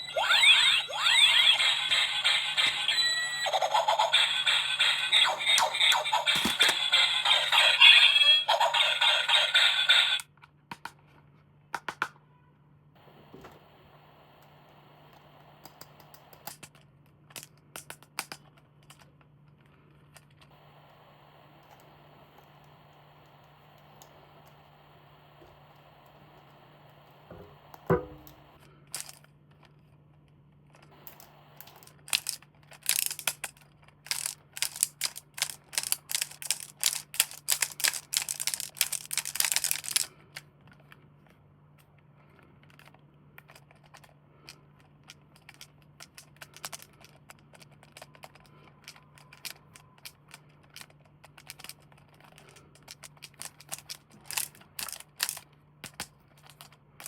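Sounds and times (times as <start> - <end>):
packaging crackling and clicking: 5.6 - 7.0, 28.2 - 41.0, 42.6 - 57.0.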